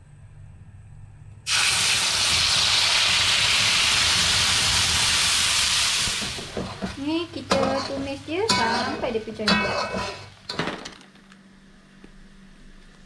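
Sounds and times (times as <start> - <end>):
spice paste sizzling in hot oil: 1.5 - 9.4.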